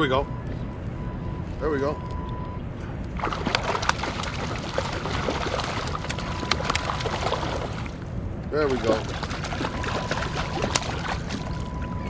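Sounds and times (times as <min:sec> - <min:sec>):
water sloshing beside kayak: 0:03.0 - 0:12.0
fish thrashing splashes: 0:03.1 - 0:12.0.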